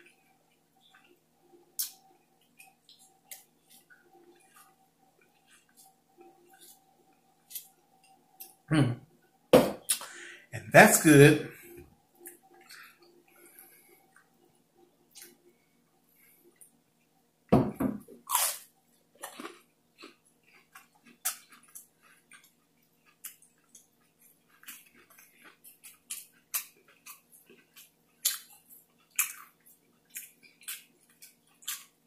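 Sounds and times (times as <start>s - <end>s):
crunchy chewing: 0.0s - 8.6s, 18.2s - 32.0s.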